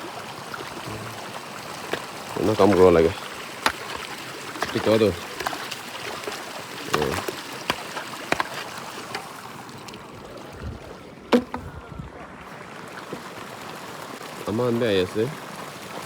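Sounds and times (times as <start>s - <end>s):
water splashing and sloshing: 0.0s - 16.0s
small knocks: 6.2s - 9.2s, 11.3s - 11.8s.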